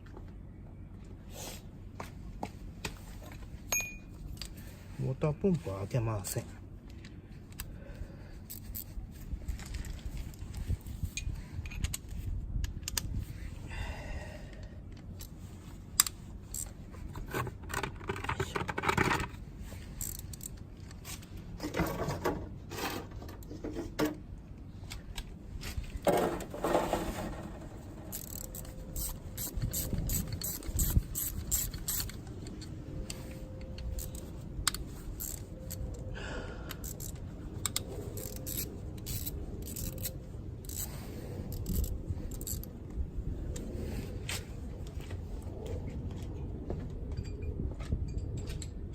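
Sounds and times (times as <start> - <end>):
ratchet wrench clicking: 20.0 - 20.5, 28.1 - 32.7, 33.9 - 36.0, 36.7 - 42.7
metal tools clinking and scraping: 26.1 - 34.4, 36.8 - 42.7.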